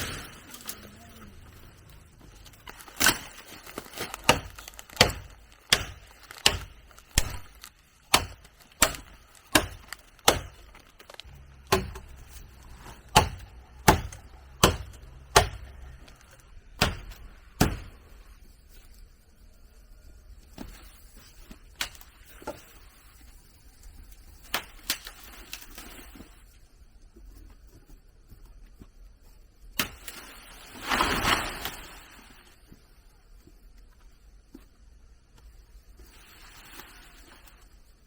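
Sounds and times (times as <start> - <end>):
blade chopping into wood: 4.3 - 7.5, 8.1 - 10.6, 11.6 - 15.8, 16.8 - 17.9.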